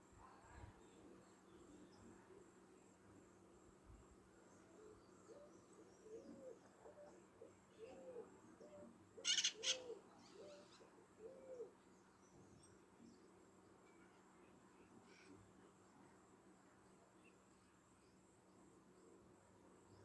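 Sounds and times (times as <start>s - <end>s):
bird hooting: 9.2s - 11.7s.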